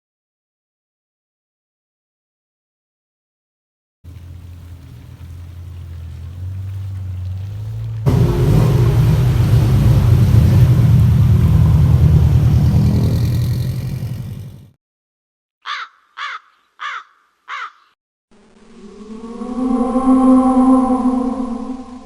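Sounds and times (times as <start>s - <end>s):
car engine and exhaust rumbling: 4.1s - 14.8s
short falling caws: 15.6s - 18.0s.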